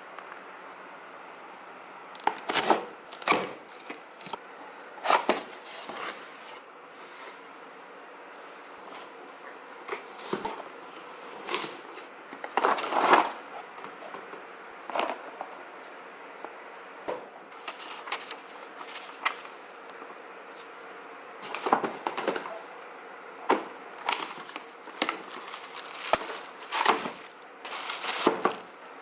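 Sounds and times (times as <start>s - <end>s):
cardboard box being handled: 23.5s - 28.8s.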